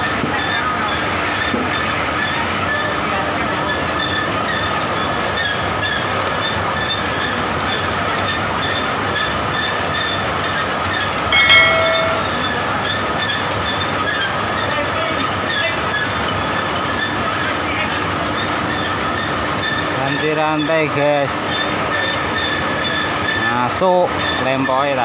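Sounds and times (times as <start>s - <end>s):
chain conveyor clattering: 11.1s - 12.3s.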